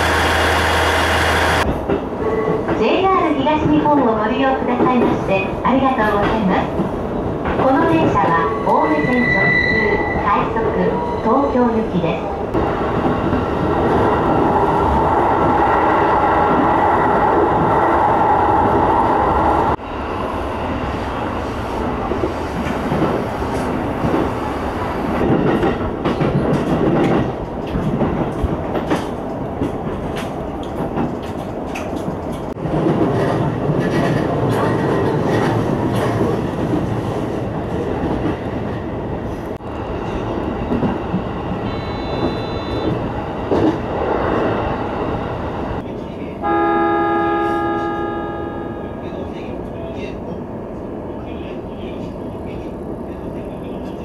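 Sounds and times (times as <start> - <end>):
electric train running: 0.0 - 1.7.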